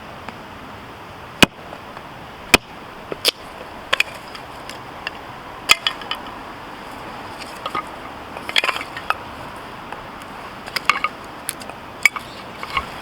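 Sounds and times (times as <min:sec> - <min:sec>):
hatchet chopping firewood: 0:01.4 - 0:01.6, 0:02.5 - 0:06.4, 0:07.0 - 0:13.0
wood cracking: 0:02.5 - 0:13.0.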